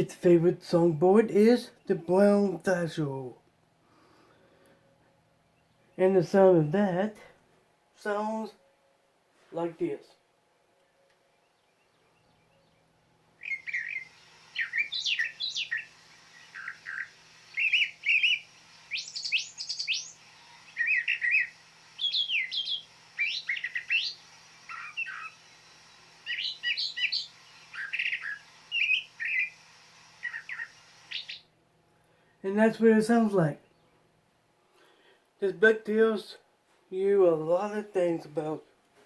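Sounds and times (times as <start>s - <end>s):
thrasher song chirping phrases: 0.0s - 3.4s, 5.4s - 7.3s, 8.0s - 8.6s, 11.5s - 31.6s.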